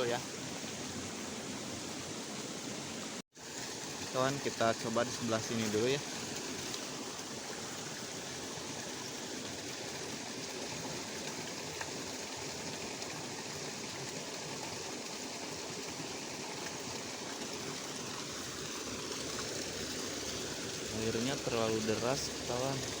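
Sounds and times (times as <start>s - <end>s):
water rushing along a ditch: 0.0s - 23.0s.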